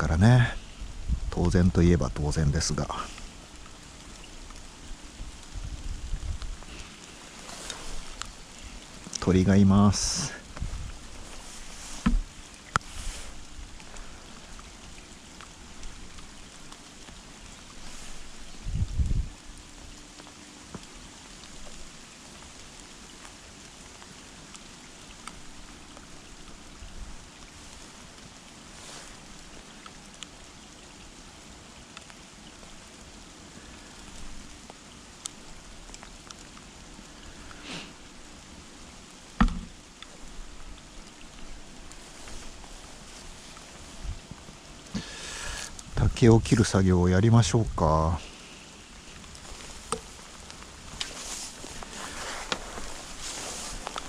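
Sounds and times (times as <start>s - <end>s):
raindrop ticks: 1.2s - 54.0s
sharp knocks: 39.4s - 39.7s
river rushing: 48.0s - 54.0s.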